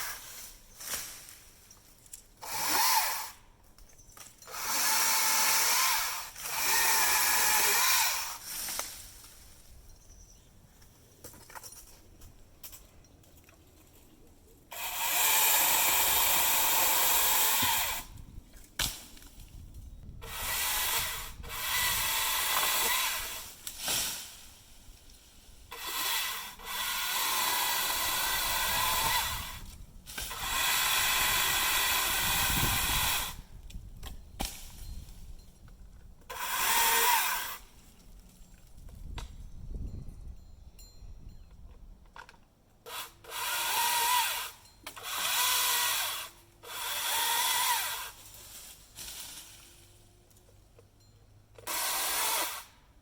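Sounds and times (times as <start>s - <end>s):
chainsaw cutting wood: 0.0s - 1.1s, 2.4s - 3.4s, 4.4s - 9.0s, 14.7s - 18.2s, 20.2s - 24.5s, 25.7s - 33.4s, 36.3s - 37.7s, 42.8s - 49.8s, 51.5s - 52.8s.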